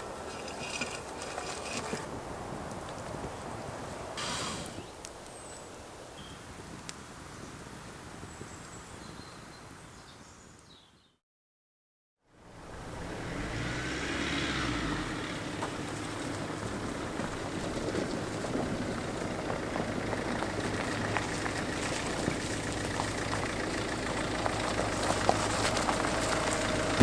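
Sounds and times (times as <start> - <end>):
vehicle engine humming: 0.0 - 4.9, 12.3 - 27.0.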